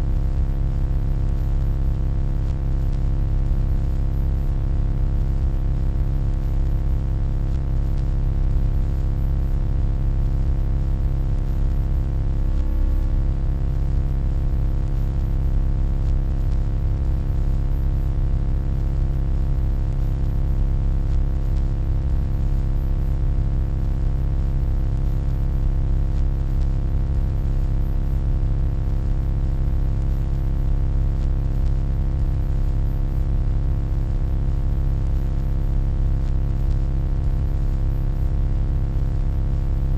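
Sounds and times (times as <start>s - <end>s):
steady electronic hum: 0.0s - 0.2s, 4.4s - 23.8s
faint electronic warble: 12.4s - 13.3s.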